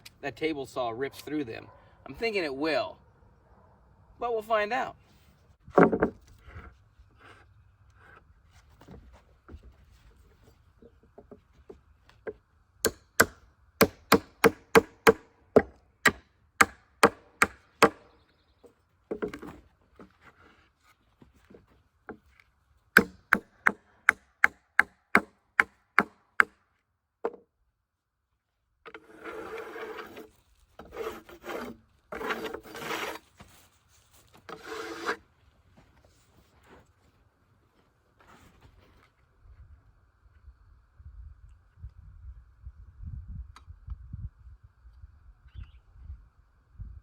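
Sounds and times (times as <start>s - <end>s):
wood scraping against wood: 5.6s - 11.8s, 19.1s - 22.4s, 28.9s - 35.2s.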